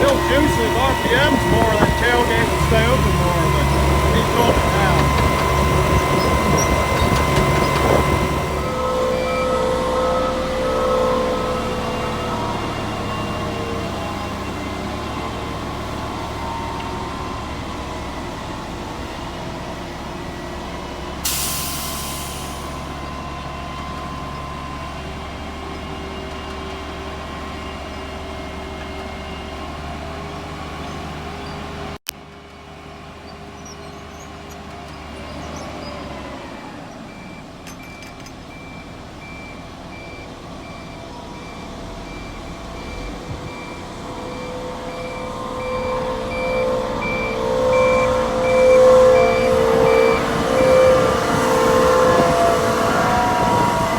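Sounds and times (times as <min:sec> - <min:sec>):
backup alarm beeping: 0:00.0 - 0:15.7, 0:38.6 - 0:53.9
truck engine running: 0:00.0 - 0:33.3, 0:36.9 - 0:53.9
air brake hiss: 0:21.2 - 0:22.9.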